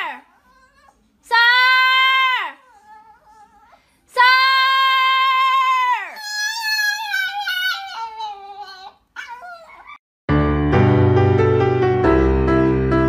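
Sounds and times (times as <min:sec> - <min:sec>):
small dog howling: 0:00.3 - 0:03.8, 0:04.4 - 0:10.0.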